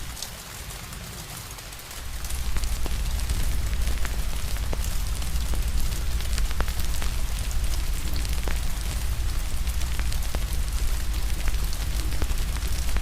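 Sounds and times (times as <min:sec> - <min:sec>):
rain hiss: 0:00.0 - 0:13.0
fire crackling and popping: 0:02.0 - 0:13.0.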